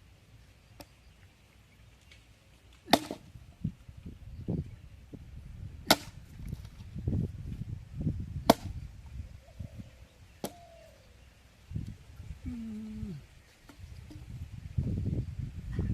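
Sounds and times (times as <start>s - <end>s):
sharp chopping strikes: 2.9s - 3.3s, 5.8s - 6.2s, 8.4s - 8.8s.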